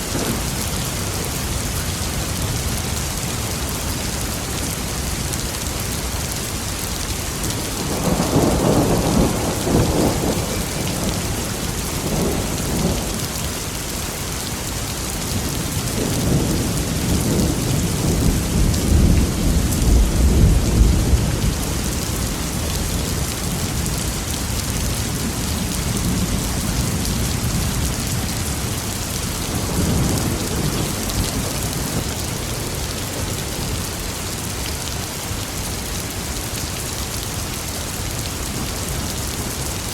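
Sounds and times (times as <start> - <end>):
heavy rain: 0.0 - 39.9
rolling thunder: 7.8 - 13.3, 15.8 - 24.1, 24.7 - 33.6.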